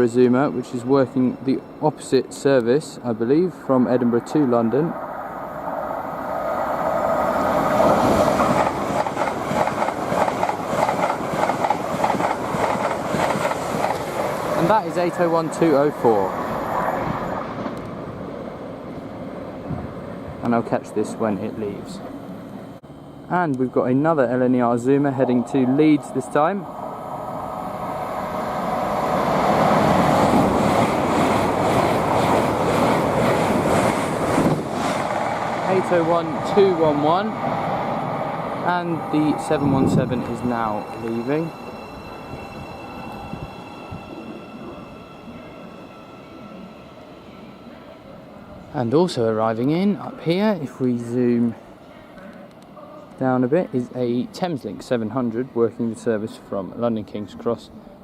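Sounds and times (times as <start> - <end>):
steady train whine: 0.0 - 56.7
train wheels rushing on rail: 4.9 - 22.2, 23.5 - 46.7.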